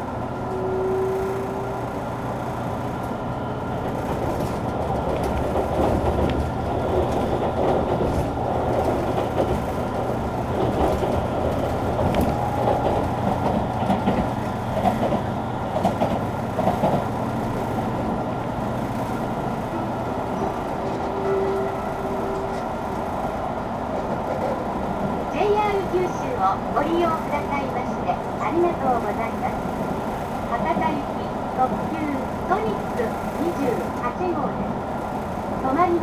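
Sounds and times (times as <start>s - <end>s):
train inverter tones: 0.0s - 36.0s
wheels rattling on rail: 0.0s - 36.0s
train car body noise: 3.8s - 17.7s.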